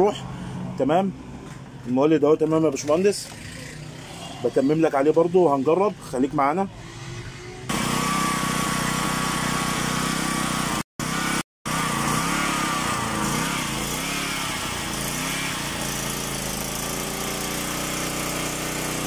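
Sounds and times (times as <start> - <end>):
portable generator engine running: 7.6 - 19.0.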